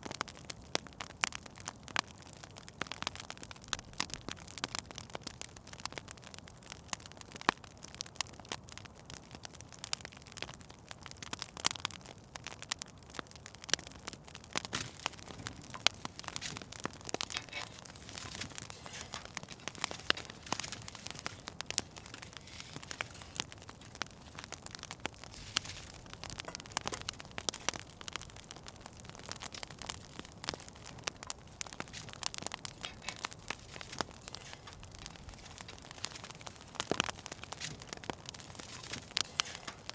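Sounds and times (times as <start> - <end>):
fire crackling with pops: 0.0 - 39.9
soft steady hiss: 13.9 - 39.9.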